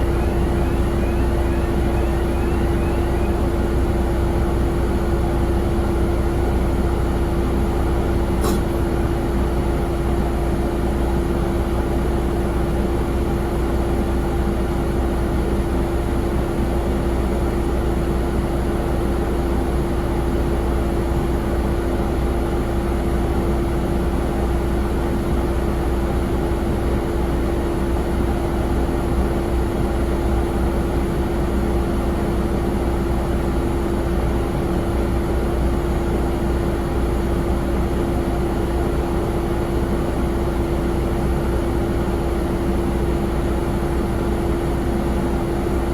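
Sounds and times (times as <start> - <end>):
jet airliner rumble and hum: 0.0 - 16.2.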